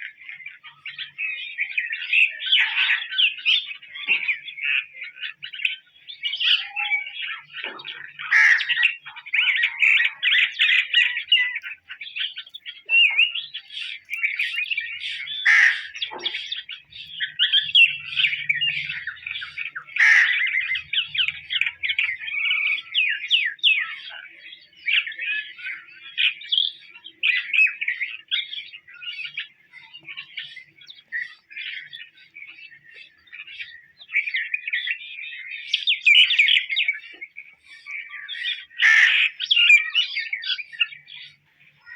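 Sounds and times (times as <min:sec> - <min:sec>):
rapid bird chirping chatter: 0:00.0 - 0:41.9
sharp bird notes: 0:11.2 - 0:24.1.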